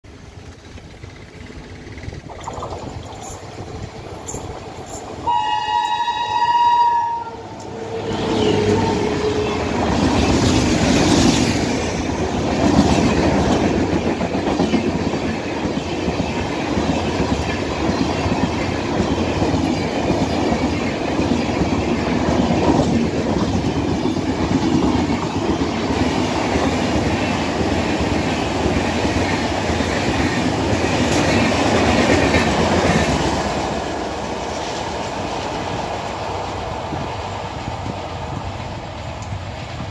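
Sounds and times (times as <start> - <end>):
train horn: 5.2 - 9.8.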